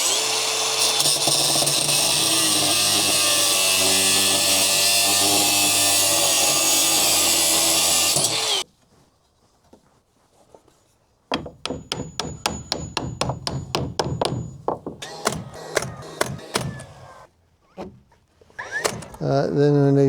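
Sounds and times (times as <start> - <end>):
power saw cutting wood: 0.0 - 8.6, 15.0 - 17.3, 18.5 - 19.3.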